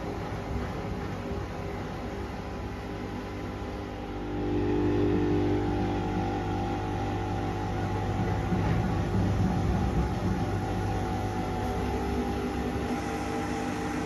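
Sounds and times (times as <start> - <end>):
washing machine motor hum: 0.0 - 14.0
high-pitched machine whine: 4.1 - 14.0.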